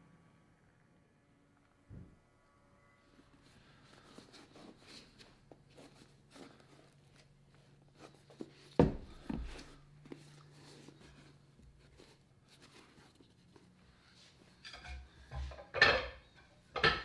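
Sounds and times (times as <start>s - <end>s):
faint low hum: 0.0s - 16.8s
hands handling leather boot: 3.9s - 14.3s.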